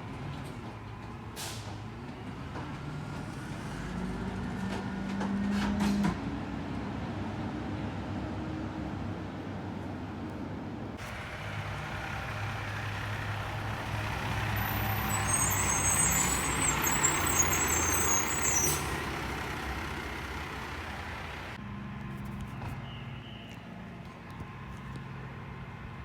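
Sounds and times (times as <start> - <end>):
garbage truck engine hum: 10.8 - 22.5
high squeal: 14.5 - 19.6.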